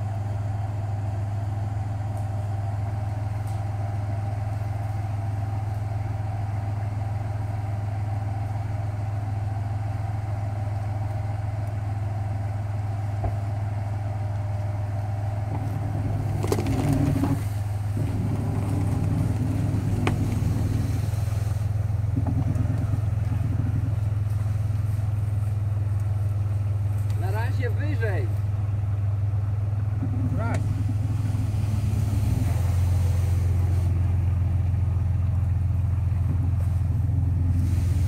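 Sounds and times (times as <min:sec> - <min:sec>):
suv engine idling: 0:00.0 - 0:38.0
vehicle clunks: 0:13.1 - 0:13.6, 0:15.4 - 0:27.3.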